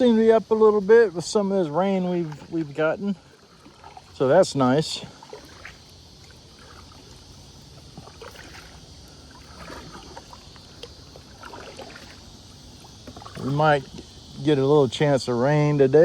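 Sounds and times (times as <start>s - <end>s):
paddle splashing in water: 2.1s - 14.2s.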